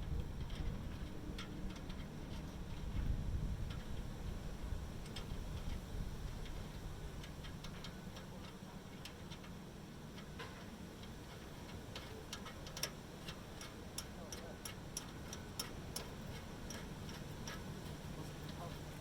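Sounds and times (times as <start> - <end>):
low steady hum: 0.0 - 19.0
hand tools tapping on metal: 5.0 - 19.0.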